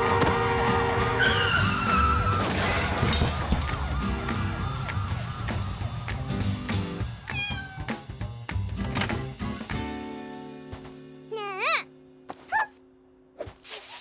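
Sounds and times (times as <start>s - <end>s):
high falling squeals: 0.0s - 6.7s
cartoon music: 0.0s - 8.0s.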